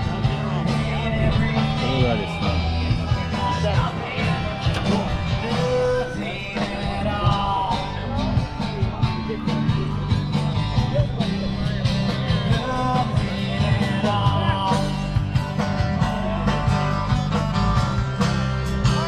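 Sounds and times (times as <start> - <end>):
rock band playing: 0.0 - 19.0.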